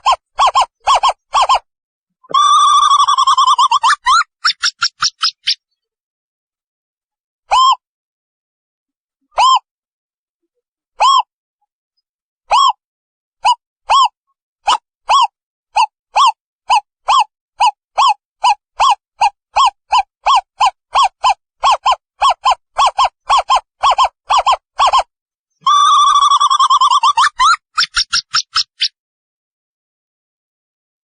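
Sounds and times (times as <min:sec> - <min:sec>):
owl wavering trill: 0:00.0 - 0:01.7, 0:02.3 - 0:05.7, 0:11.0 - 0:11.3, 0:12.5 - 0:12.8, 0:13.4 - 0:29.0.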